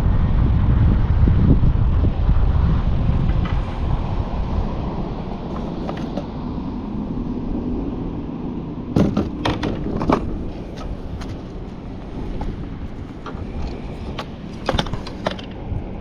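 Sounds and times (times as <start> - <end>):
wind: 0.0 - 16.0
sharp knocks: 9.0 - 11.4.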